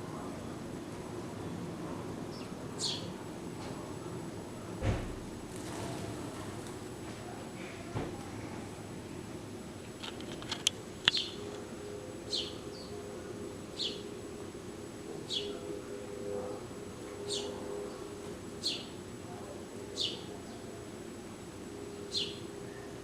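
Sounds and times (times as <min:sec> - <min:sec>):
steady low hum: 0:00.0 - 0:23.0
sharp clicks: 0:10.0 - 0:11.6.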